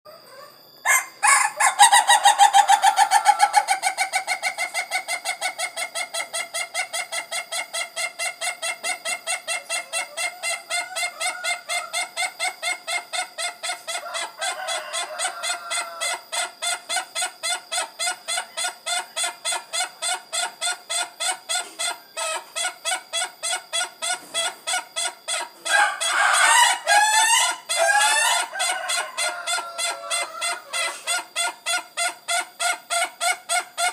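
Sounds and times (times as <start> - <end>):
rooster crowing: 0.8 - 4.4, 13.9 - 16.6, 25.6 - 31.1.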